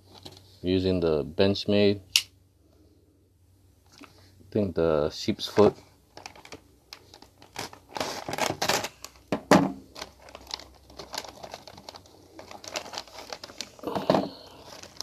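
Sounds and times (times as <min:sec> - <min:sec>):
packaging rustling and crinkling: 0:00.0 - 0:00.6, 0:05.4 - 0:15.0.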